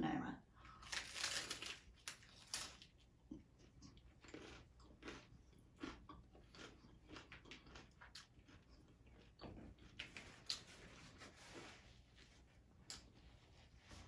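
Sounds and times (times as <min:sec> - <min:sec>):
crunching taco being chewed: 0:00.7 - 0:11.8.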